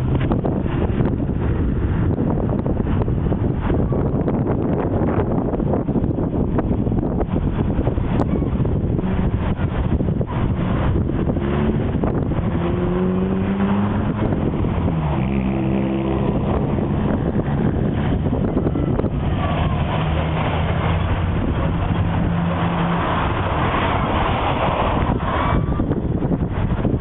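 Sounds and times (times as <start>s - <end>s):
car engine hum: 0.0s - 27.0s
road noise: 0.0s - 27.0s.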